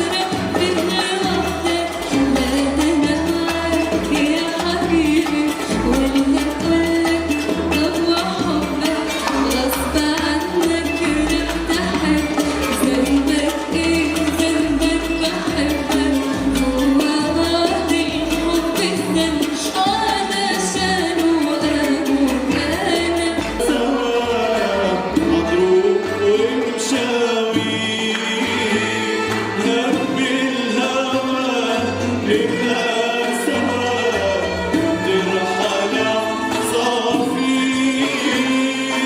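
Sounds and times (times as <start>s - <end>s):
instrumental ensemble: 0.0s - 39.0s
choir singing: 22.7s - 39.0s.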